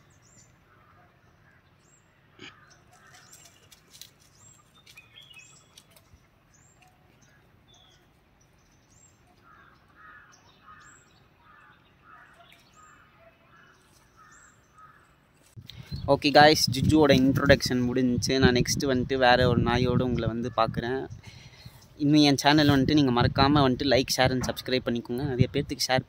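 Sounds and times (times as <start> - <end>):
faint bird chirps: 0.0 - 15.1.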